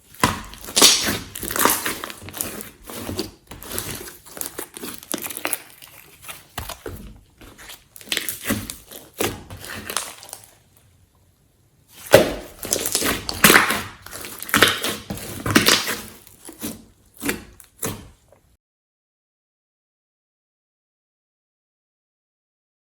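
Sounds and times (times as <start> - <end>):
slime squelching and clicking: 0.1 - 6.9, 12.0 - 18.0.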